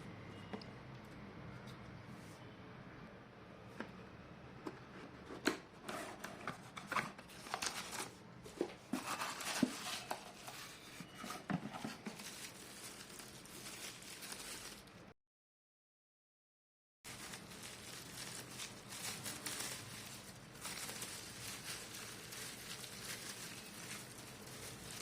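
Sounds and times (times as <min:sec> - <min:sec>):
rustling: 0:06.2 - 0:15.0, 0:17.1 - 0:25.0.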